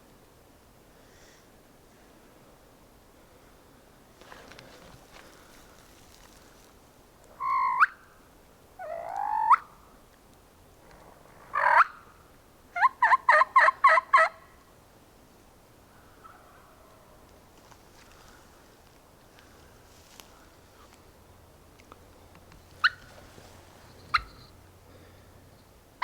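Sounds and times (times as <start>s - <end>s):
wild turkey gobbling: 10.9s - 12.1s, 12.8s - 14.5s, 22.5s - 24.6s.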